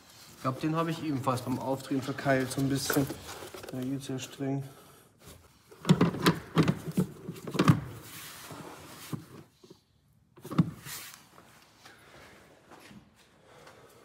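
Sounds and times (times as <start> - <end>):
plastic parts clicking and knocking: 5.7 - 8.0.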